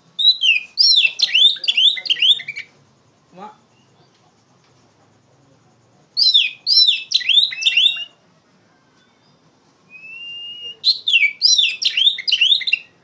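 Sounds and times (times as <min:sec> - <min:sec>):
songbird whistling: 0:00.2 - 0:02.8, 0:06.2 - 0:13.0.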